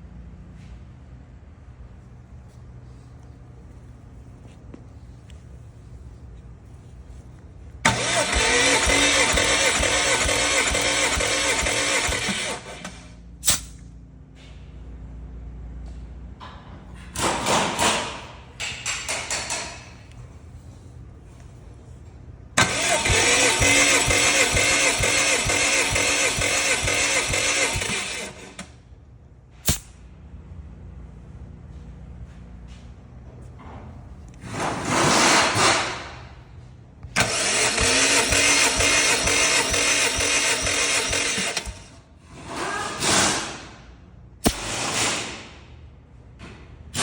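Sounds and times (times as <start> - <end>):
engine cranked by starter: 7.8 - 13.2, 22.6 - 28.8, 37.0 - 45.5.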